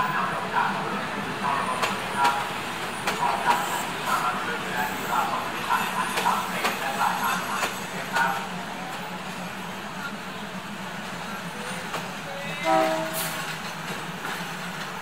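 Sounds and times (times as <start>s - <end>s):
diesel train engines humming: 0.0s - 15.0s
train horn toot: 12.6s - 13.4s.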